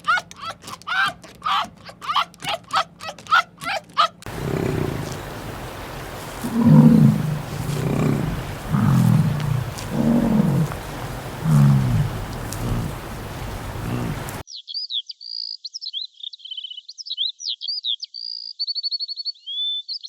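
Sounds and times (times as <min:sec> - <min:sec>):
large animal grunting: 0:04.3 - 0:14.4.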